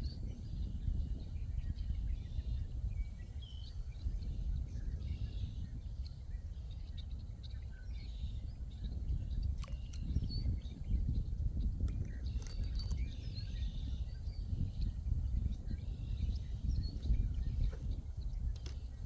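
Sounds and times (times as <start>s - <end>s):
sharp clicks: 9.6s - 10.1s, 11.9s - 13.0s.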